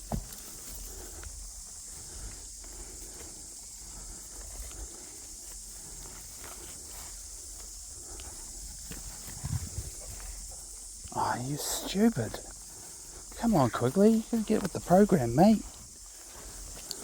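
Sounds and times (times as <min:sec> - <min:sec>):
footsteps on rough ground: 0:00.0 - 0:17.0
wind on microphone: 0:09.3 - 0:10.2.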